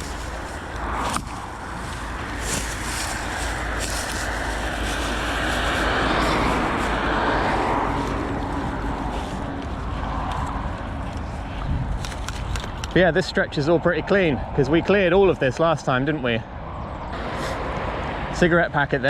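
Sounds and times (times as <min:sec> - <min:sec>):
vehicle passing: 0:00.0 - 0:12.0.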